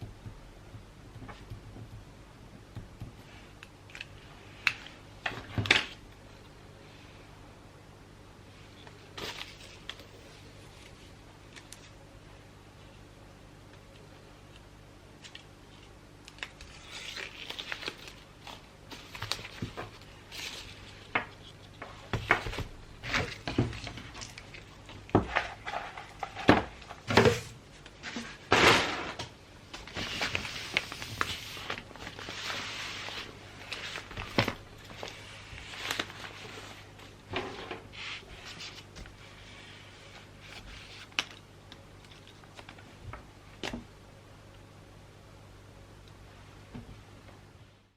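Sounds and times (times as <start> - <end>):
wrapping paper rustling: 15.2 - 27.1, 29.8 - 37.2.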